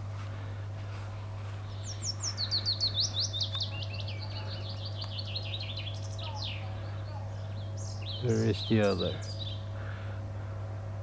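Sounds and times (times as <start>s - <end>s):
small songbird singing: 1.8s - 9.6s.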